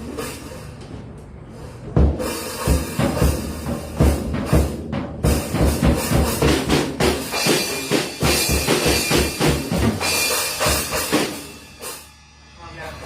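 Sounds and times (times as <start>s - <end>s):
acoustic drum kit playing: 0.0s - 13.0s.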